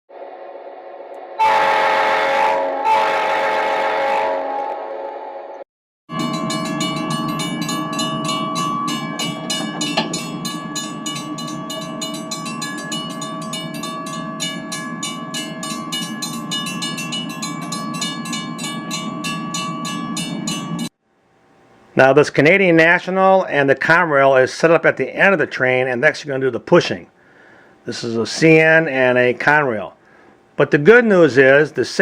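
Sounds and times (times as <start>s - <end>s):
wheels clicking over rail joints: 6.2s - 20.0s.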